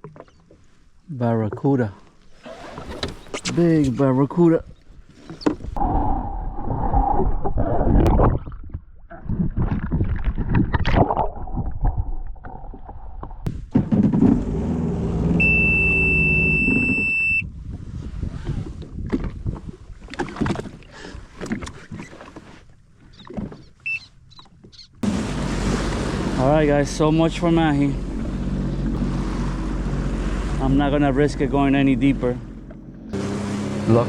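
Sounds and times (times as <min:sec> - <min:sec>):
jet ski engine running: 0:13.5 - 0:17.4, 0:23.8 - 0:34.0
high steady beep: 0:15.4 - 0:17.4
wind buffeting: 0:17.4 - 0:20.0
water splashing: 0:24.3 - 0:34.0.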